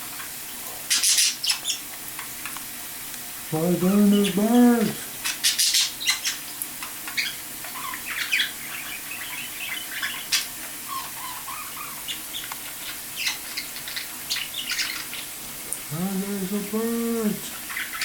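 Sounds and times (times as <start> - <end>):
budgerigars chirping and chattering: 0.9 - 1.9, 5.2 - 6.5, 7.1 - 15.4, 16.0 - 18.0.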